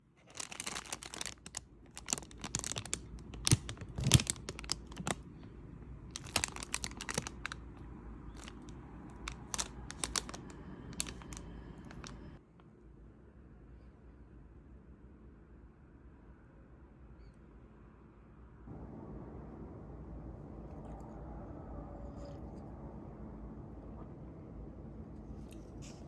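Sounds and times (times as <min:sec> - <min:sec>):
crinkling and rustling: 0:00.0 - 0:05.5, 0:06.1 - 0:12.4.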